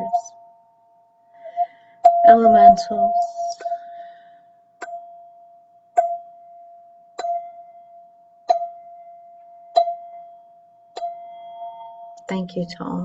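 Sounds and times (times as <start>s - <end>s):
metal chime tube ringing: 6.1s - 13.0s.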